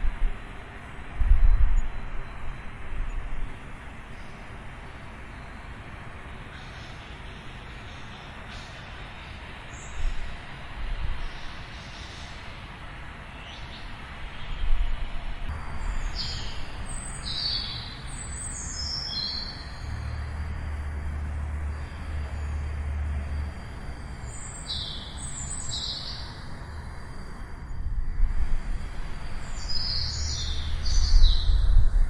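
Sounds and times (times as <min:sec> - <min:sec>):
small birds chirping: 0:06.4 - 0:27.4, 0:28.8 - 0:32.0.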